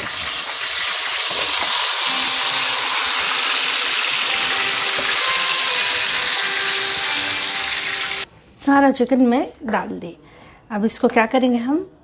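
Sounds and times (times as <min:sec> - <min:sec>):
chicken sizzling in hot oil: 0:00.0 - 0:08.3.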